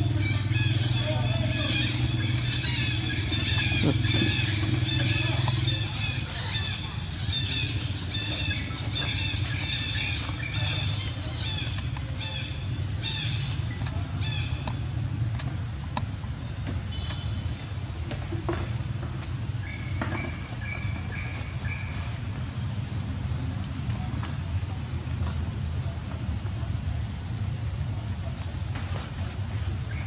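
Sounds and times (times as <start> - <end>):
bird warbled call: 0.0 - 14.6
low engine hum: 0.0 - 30.0.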